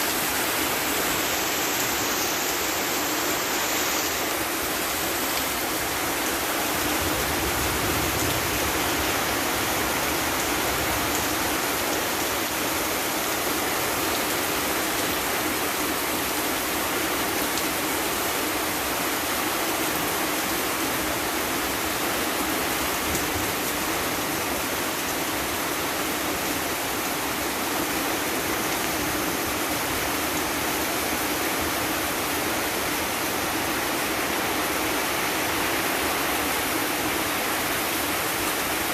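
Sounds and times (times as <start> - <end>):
heavy rain: 0.0 - 38.9
storm wind: 5.6 - 12.9.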